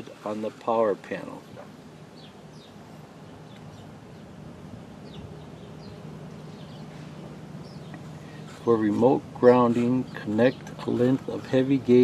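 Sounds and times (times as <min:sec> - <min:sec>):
low steady hum: 0:00.0 - 0:12.0
high bird chirps: 0:05.0 - 0:08.1.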